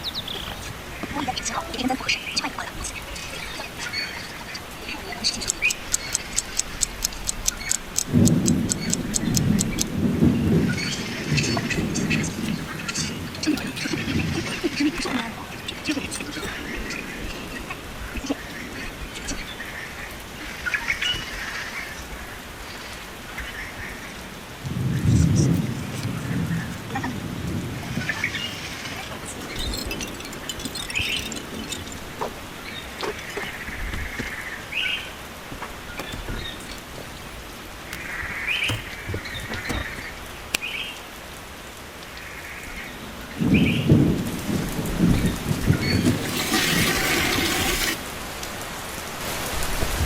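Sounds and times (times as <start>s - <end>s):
steady rain falling: 0.0s - 50.0s
rapid sharp ticks: 5.4s - 10.0s.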